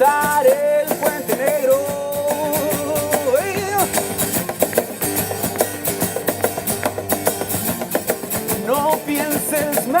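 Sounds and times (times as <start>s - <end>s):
electric guitar chords: 0.0s - 10.0s.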